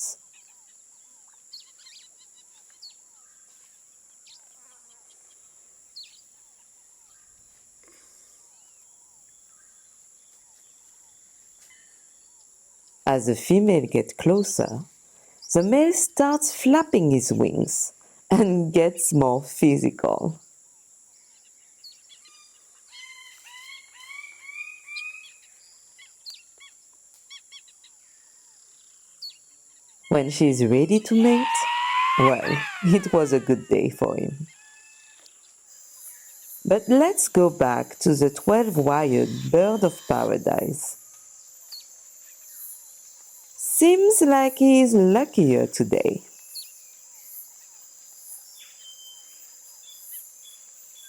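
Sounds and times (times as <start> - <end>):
bird calls and chirps: 0.0 - 7.6, 21.1 - 36.9, 38.2 - 40.7, 41.4 - 43.6, 46.2 - 51.0
insect drone: 0.0 - 13.8, 14.4 - 51.0
high-pitched insect drone: 30.2 - 35.0
loud rising bird calls: 30.5 - 35.2.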